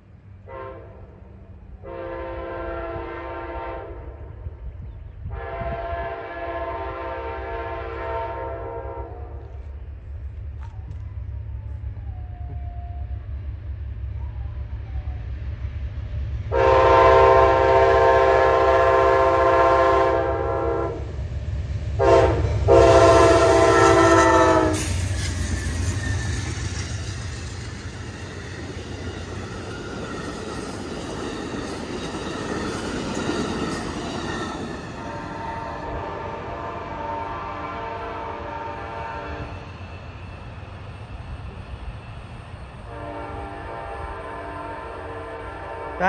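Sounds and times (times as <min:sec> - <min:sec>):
locomotive horn blasts: 0:00.4 - 0:01.2, 0:01.8 - 0:04.2, 0:05.2 - 0:09.5, 0:16.5 - 0:21.0, 0:22.0 - 0:24.9, 0:35.0 - 0:39.6, 0:42.9 - 0:46.0
steel wheels rushing on rails: 0:01.1 - 0:46.0
clickety-clack of train cars: 0:09.3 - 0:13.0, 0:16.5 - 0:45.4.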